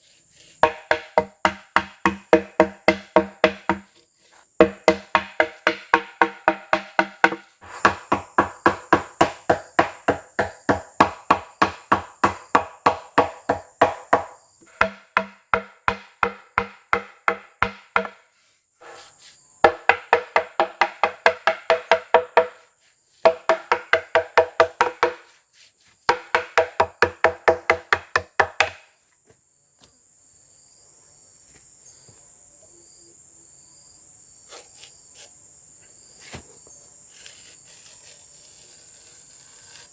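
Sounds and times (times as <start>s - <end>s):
insects whining: 0.0s - 39.9s
tool knocking on wood: 0.6s - 4.0s, 4.6s - 18.2s, 19.6s - 22.6s, 23.2s - 25.3s, 26.1s - 28.8s.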